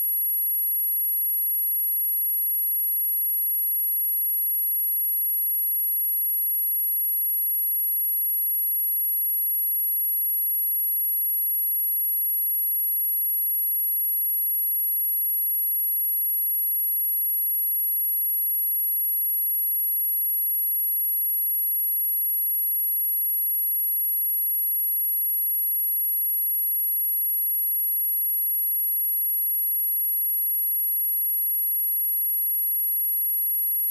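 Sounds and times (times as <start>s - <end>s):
high-pitched sine test tone: 32.3s - 33.9s.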